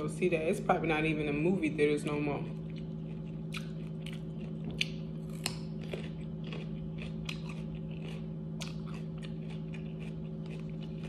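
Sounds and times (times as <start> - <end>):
steady low hum: 0.0 - 11.0
crunchy chewing and biting: 2.4 - 11.0.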